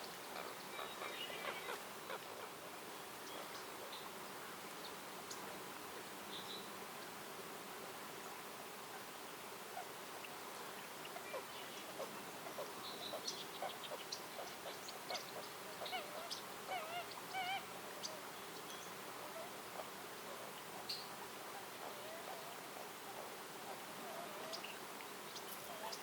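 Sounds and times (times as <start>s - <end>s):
warbled bird calls: 0.0s - 2.6s, 9.8s - 26.0s
steady background hiss: 0.0s - 26.0s.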